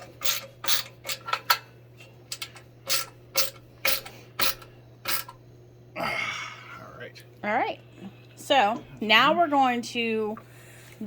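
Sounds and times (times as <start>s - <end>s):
hard parts clicking and clattering: 0.0s - 1.7s, 2.3s - 5.4s
faint steady hum: 0.0s - 11.0s.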